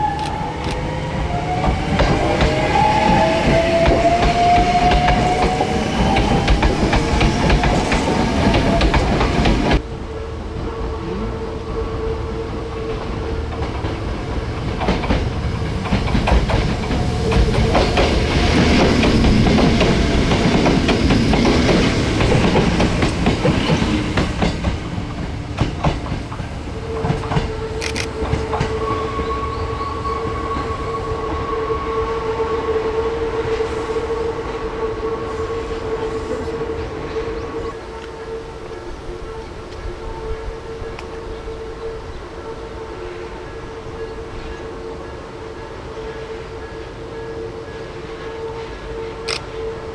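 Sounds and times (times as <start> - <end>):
train wheels clacking over rail joints: 0.0 - 9.8, 12.9 - 29.3.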